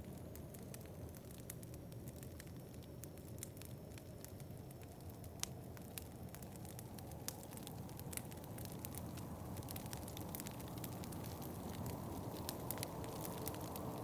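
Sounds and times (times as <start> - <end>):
sharp pops of fire: 0.0 - 14.0
wood fire crackling: 0.0 - 14.0
low rush of wind: 3.8 - 14.0.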